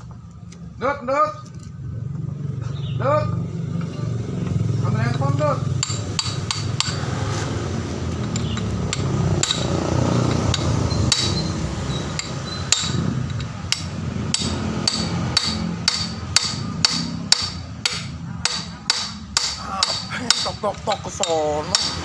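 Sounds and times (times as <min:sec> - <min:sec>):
hammer striking metal: 0:05.7 - 0:07.2, 0:08.2 - 0:22.0.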